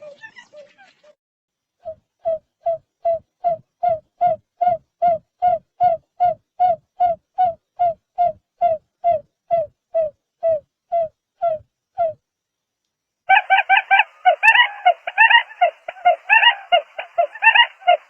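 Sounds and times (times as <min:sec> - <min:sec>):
bird low hooting notes: 0:13.3 - 0:18.0.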